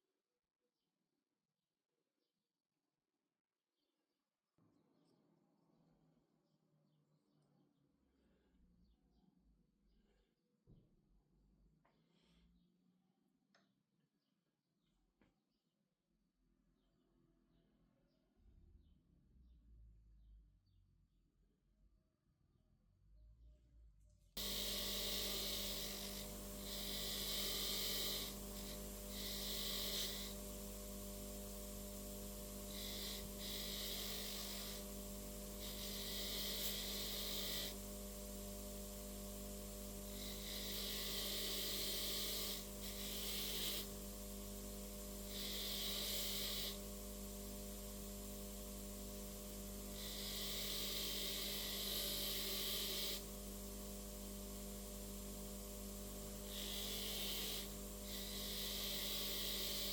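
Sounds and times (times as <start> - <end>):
hissing noise: 24.4 - 59.9
machine hum: 24.4 - 59.9.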